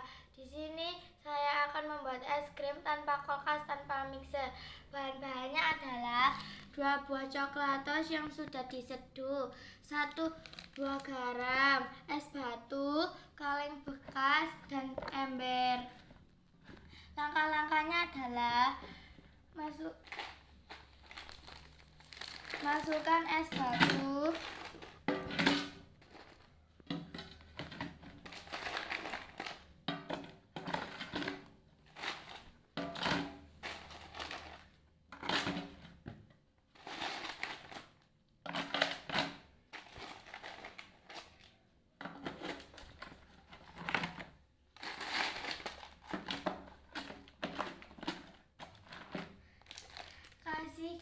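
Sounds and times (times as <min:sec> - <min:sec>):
ice cubes crunching and rattling: 0:10.3 - 0:11.2, 0:20.0 - 0:26.6, 0:27.2 - 0:29.7, 0:30.7 - 0:35.7, 0:36.8 - 0:39.2, 0:39.8 - 0:41.4, 0:44.8 - 0:50.5.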